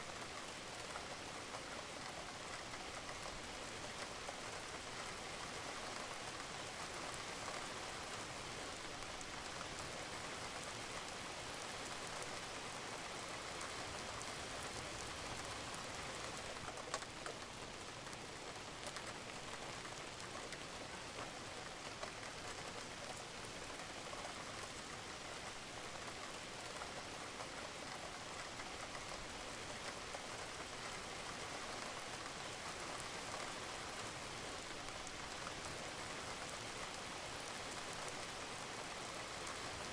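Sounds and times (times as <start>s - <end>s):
rain on a roof: 0.0s - 39.9s.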